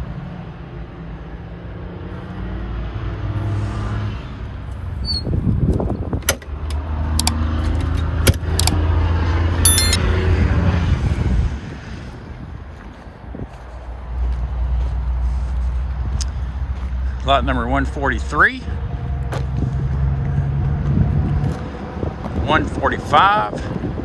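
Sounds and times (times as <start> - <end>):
vehicle engine rumbling: 2.0 - 12.8, 13.8 - 23.1
sharp clicks and knocks: 5.7 - 8.8, 9.6 - 10.0.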